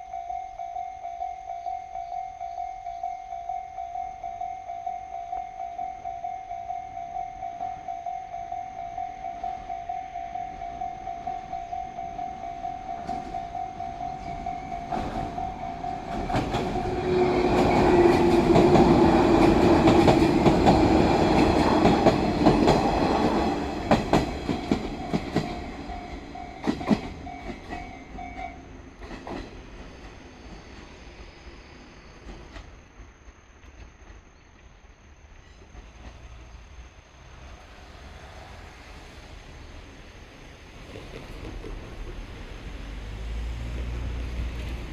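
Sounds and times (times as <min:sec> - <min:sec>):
level crossing bell ringing: 0:00.0 - 0:17.0
train wheels clattering: 0:10.9 - 0:31.3.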